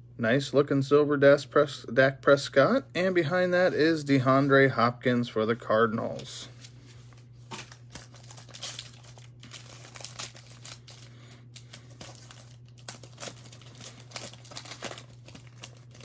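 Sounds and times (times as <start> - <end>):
steady low hum: 0.0 - 16.0
foil wrapper crinkling: 6.2 - 16.0.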